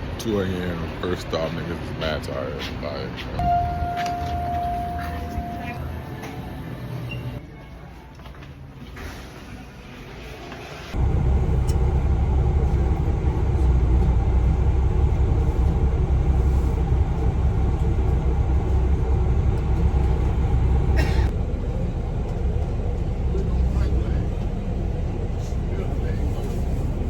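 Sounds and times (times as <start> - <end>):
moving vehicle rumble from inside: 3.2 - 7.4, 10.7 - 27.0.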